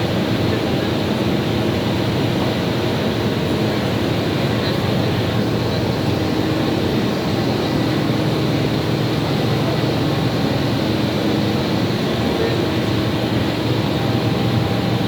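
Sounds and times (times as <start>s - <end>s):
processing machine droning: 4.6s - 15.0s.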